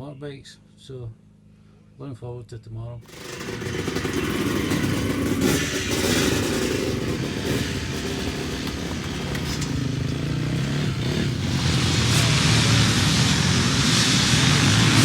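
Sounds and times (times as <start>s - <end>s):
motorcycle engines under throttle: 3.0s - 15.0s.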